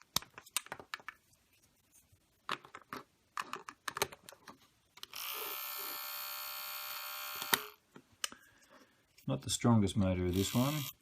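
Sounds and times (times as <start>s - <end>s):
electric motor whine: 5.2s - 7.7s.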